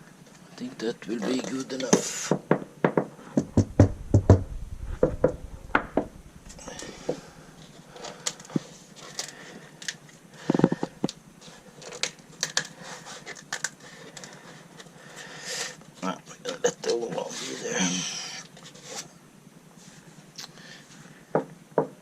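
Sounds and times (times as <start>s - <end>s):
knocks and taps inside a car: 2.3s - 6.1s
heavy thumps: 2.9s - 7.6s.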